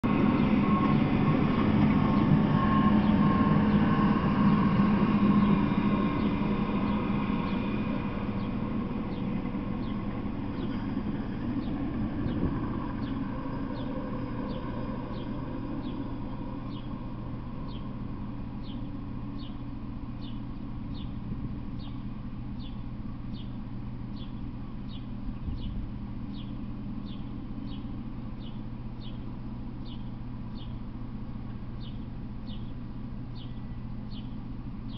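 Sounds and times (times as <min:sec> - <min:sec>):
freight train rumble: 0:00.0 - 0:34.9
low steady hum: 0:00.0 - 0:34.9.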